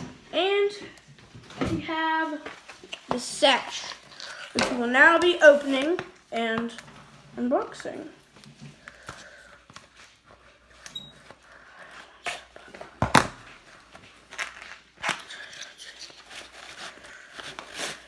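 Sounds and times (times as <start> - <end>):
packaging crinkling and tearing: 13.8 - 18.0.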